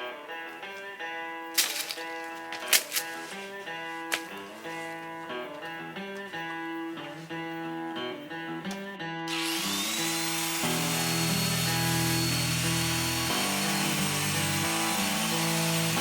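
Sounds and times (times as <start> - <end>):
guitar-led background music: 0.0 - 16.0
power tool whining: 1.6 - 5.4, 9.3 - 16.0.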